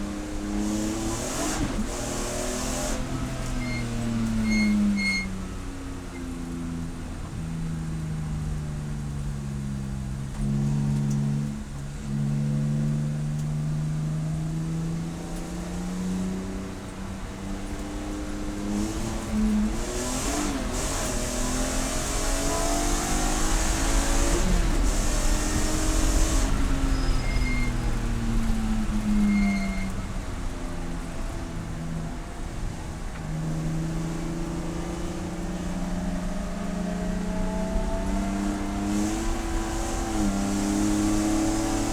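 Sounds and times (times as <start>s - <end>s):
race car engine revving: 0.0s - 4.8s, 10.3s - 41.9s.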